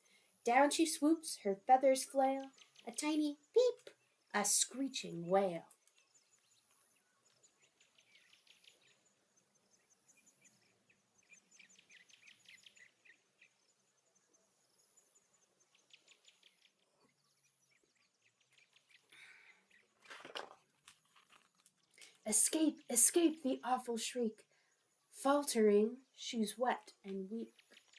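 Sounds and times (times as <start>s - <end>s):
faint high-pitched chirping: 0.0s - 27.9s
soft rustle: 19.7s - 22.3s.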